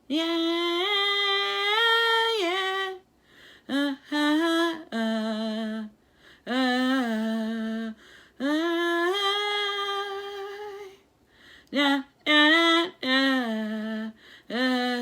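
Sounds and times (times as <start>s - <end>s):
woman singing unaccompanied: 0.0s - 15.0s.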